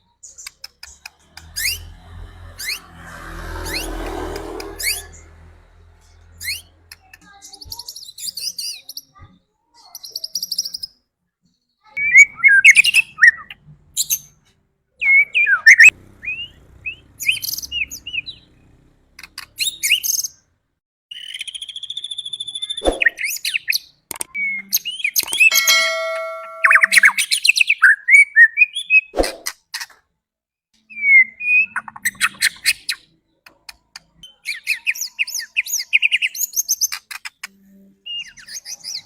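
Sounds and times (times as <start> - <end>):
bird trill: 0.2 - 2.9, 25.3 - 27.4.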